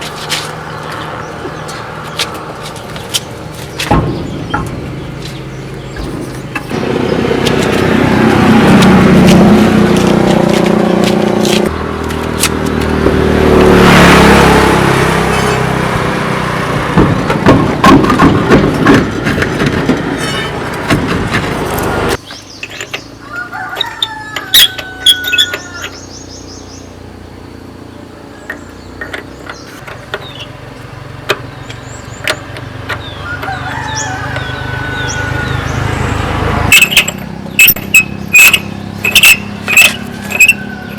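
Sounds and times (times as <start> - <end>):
birds chirping: 0.0 - 18.8, 21.6 - 40.9
truck engine running: 0.0 - 23.3, 25.5 - 40.9
sharp knocks: 3.6 - 8.0, 16.8 - 21.7.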